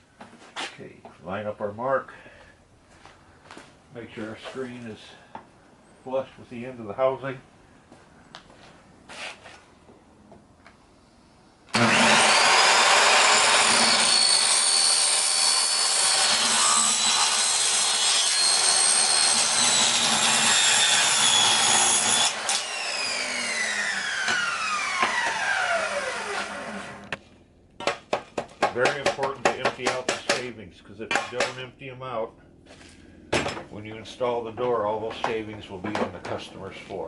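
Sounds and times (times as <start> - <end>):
power saw cutting with whine: 11.7 - 27.1
saw blade spinning down: 11.7 - 27.1.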